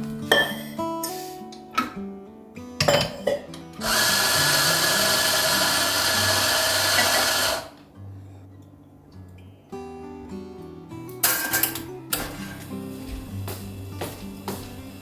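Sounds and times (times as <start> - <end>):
soft guitar music: 0.0 - 15.0
small electric motor whirring: 3.8 - 7.8.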